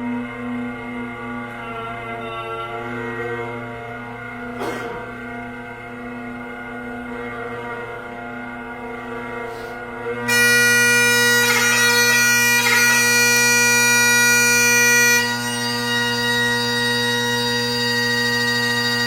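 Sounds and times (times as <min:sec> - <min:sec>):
bagpipe drone: 0:00.0 - 0:19.0
bagpipe chanter melody: 0:10.2 - 0:19.0.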